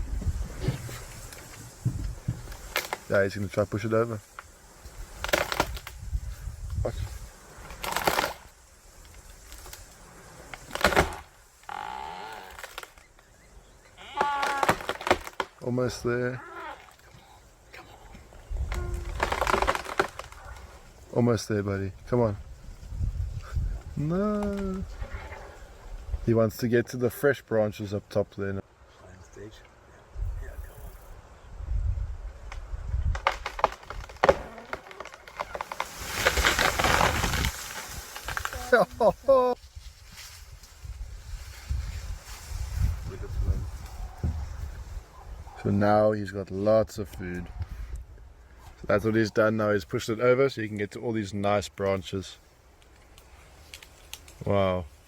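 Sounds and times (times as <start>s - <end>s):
crash of leafy branches: 0.0s - 13.2s, 14.0s - 17.1s, 18.4s - 21.1s, 33.1s - 45.0s
wood cracking and snapping: 0.6s - 3.2s, 4.3s - 6.8s, 7.6s - 13.2s, 14.0s - 15.8s, 18.5s - 21.0s, 32.5s - 38.9s, 52.8s - 54.4s.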